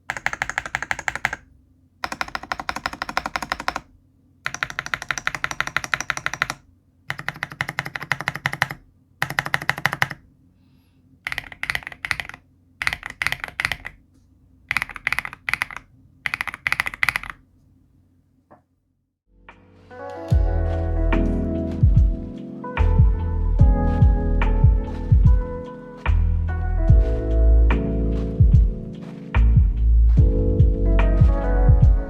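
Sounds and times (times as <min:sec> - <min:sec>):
mechanical keyboard typing: 0:00.0 - 0:10.2, 0:11.3 - 0:14.0, 0:14.7 - 0:17.4.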